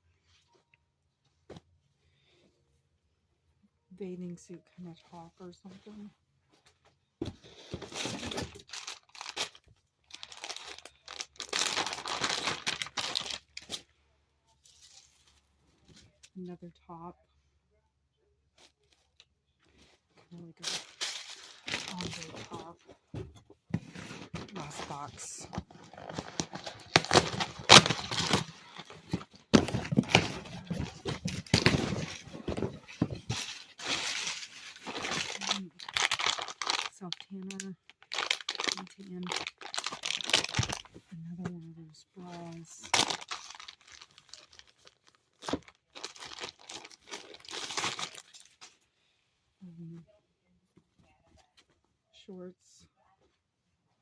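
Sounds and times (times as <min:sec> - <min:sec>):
packaging crinkling and tearing: 0:07.9 - 0:13.8, 0:20.6 - 0:22.8, 0:24.4 - 0:41.0, 0:42.8 - 0:48.8
box being torn open: 0:25.7 - 0:36.9.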